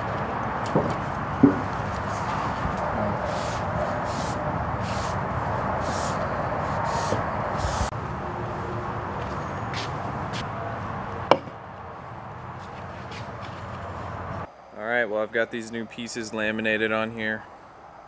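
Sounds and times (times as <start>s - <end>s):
rasping strokes on wood: 0.0s - 7.9s
steady background noise: 0.0s - 18.0s.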